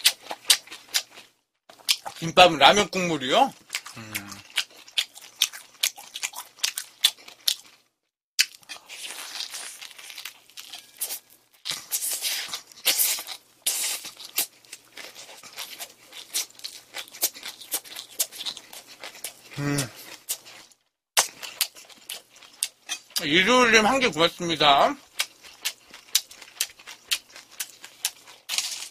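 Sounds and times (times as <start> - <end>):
chewing food close up: 0.0 - 28.9
person humming: 4.0 - 4.4, 19.6 - 20.0.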